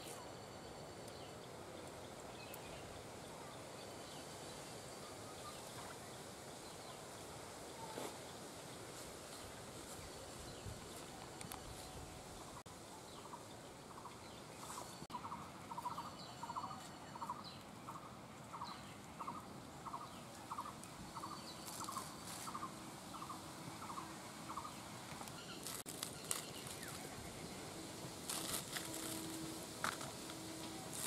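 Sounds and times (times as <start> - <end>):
blade cutting leaves: 21.6 - 22.6, 25.2 - 27.1, 28.2 - 31.0.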